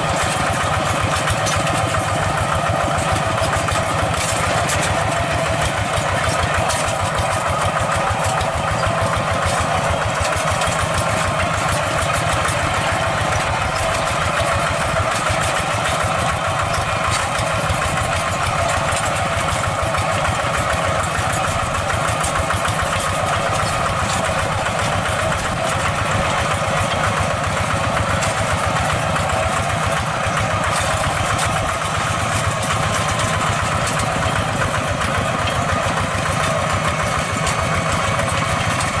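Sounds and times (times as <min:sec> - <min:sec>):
tractor engine running: 0:00.0 - 0:39.0.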